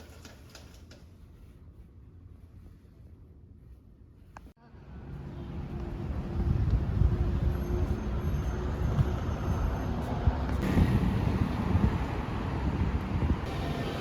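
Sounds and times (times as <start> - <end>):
vehicle rumble: 4.6 - 14.0.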